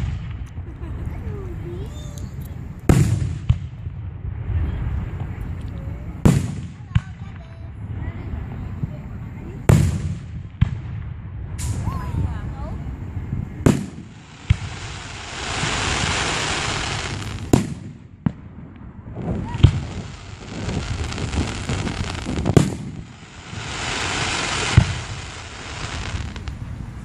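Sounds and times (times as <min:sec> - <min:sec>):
fireworks crackling hiss: 0:00.0 - 0:03.8, 0:04.5 - 0:10.8, 0:11.5 - 0:27.0
fireworks bangs: 0:00.0 - 0:27.0.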